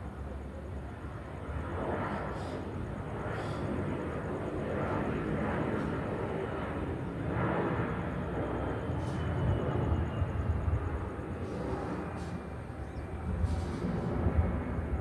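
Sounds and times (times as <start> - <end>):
jet engines rumbling: 0.0 - 15.0
jet engine whine falling in pitch: 6.8 - 15.0.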